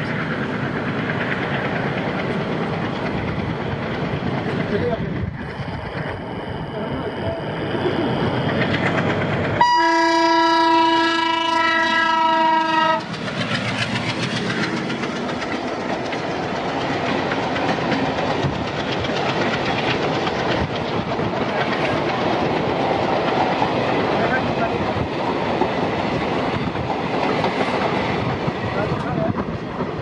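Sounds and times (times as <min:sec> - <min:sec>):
train wheels rumbling and clattering: 0:00.0 - 0:30.0
locomotive horn blast: 0:09.6 - 0:13.1.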